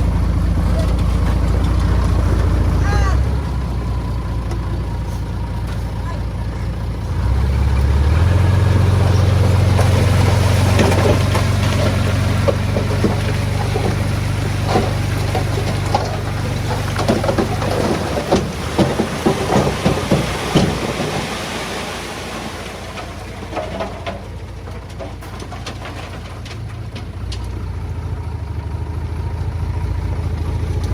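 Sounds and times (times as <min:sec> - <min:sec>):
heavy engine droning: 0:00.0 - 0:30.9
loose stone clattering: 0:09.1 - 0:27.6.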